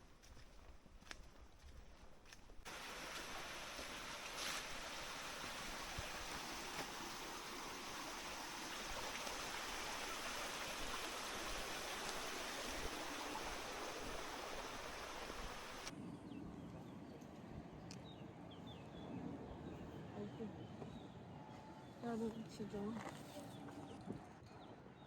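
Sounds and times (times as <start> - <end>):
water rushing: 2.7 - 15.9.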